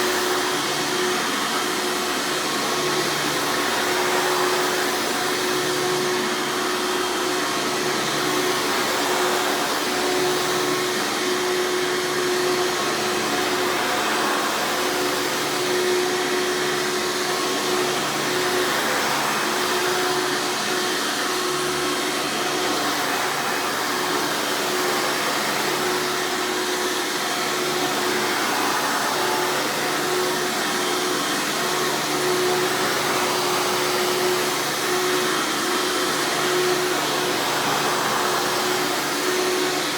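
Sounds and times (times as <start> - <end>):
upright vacuum running: 0.0 - 39.9.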